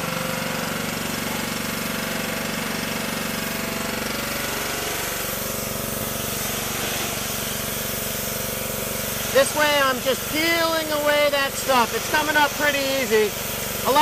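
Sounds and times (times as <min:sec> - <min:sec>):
pressure washer engine drone: 0:00.0 - 0:14.0
water jet hissing: 0:00.0 - 0:14.0.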